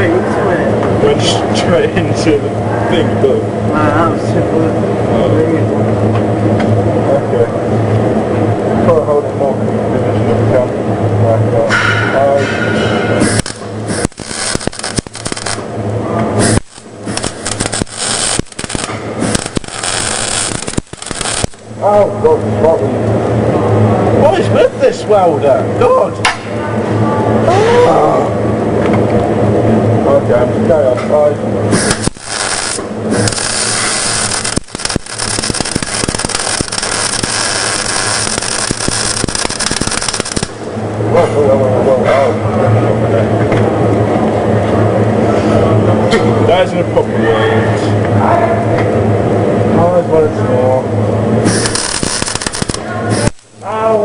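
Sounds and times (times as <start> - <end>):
low hum: 0.0 - 54.0
welding arc crackling: 12.4 - 22.4, 31.6 - 41.1, 51.3 - 54.0.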